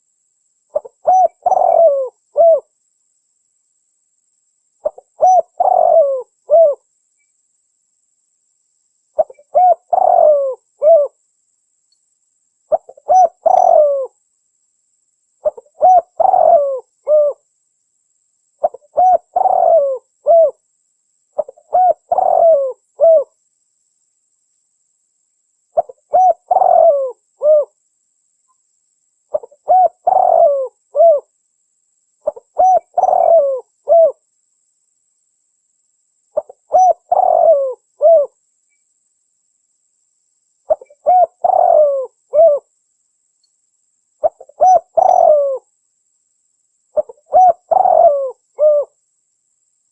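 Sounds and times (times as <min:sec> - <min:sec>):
dove cooing: 0:00.7 - 0:02.7, 0:04.8 - 0:06.8, 0:09.2 - 0:11.2, 0:12.7 - 0:14.2, 0:15.4 - 0:17.4, 0:18.6 - 0:20.6, 0:21.4 - 0:23.3, 0:25.8 - 0:27.8, 0:29.3 - 0:31.3, 0:32.2 - 0:34.2, 0:36.4 - 0:38.4, 0:40.7 - 0:42.7, 0:44.2 - 0:45.6, 0:47.0 - 0:49.0.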